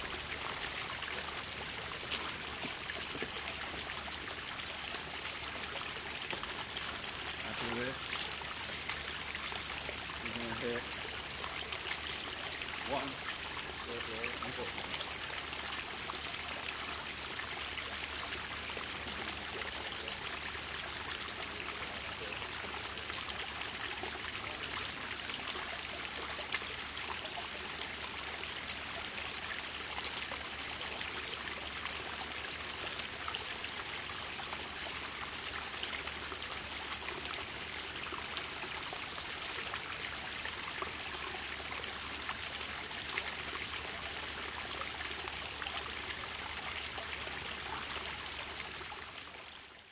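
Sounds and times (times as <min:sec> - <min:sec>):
flowing water: 0:00.0 - 0:49.9.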